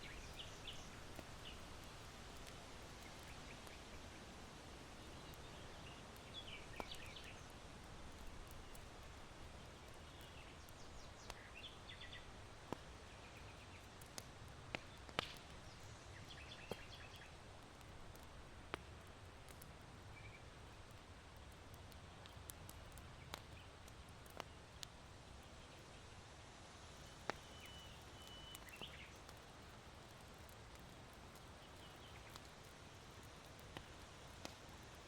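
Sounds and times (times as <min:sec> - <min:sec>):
small birds chirping: 0:00.0 - 0:17.5, 0:27.0 - 0:35.0
wind in bamboo: 0:00.0 - 0:18.7, 0:24.5 - 0:35.0
charcoal crackling pops: 0:00.0 - 0:25.8, 0:26.8 - 0:35.0.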